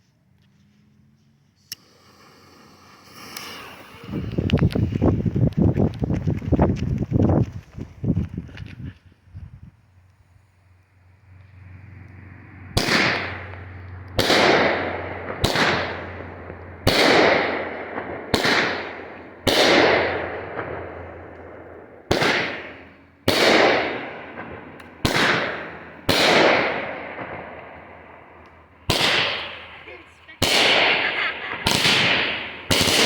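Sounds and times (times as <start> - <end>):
firework bangs: 1.8 - 7.3, 12.6 - 33.0.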